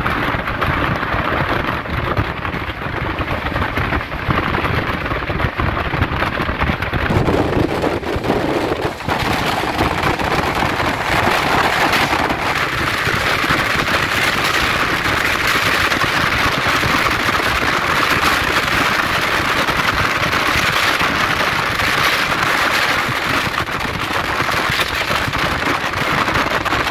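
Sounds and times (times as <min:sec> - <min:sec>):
train wheels rumbling: 0:07.0 - 0:15.6.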